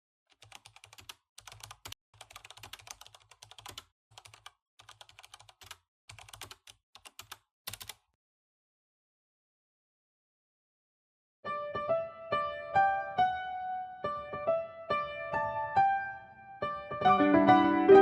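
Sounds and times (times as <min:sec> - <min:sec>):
computer keyboard typing: 0:00.3 - 0:08.1.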